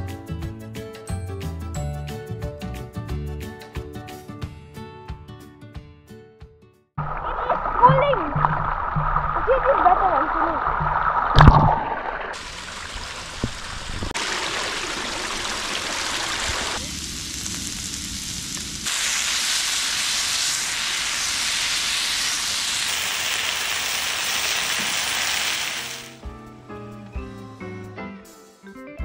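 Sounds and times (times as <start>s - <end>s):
onions sizzling in a pan: 12.6s - 26.2s.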